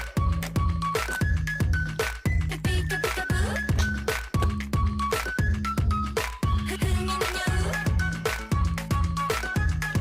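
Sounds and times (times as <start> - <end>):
electronic pop music: 0.0 - 10.0
kick drum beat: 0.0 - 10.0.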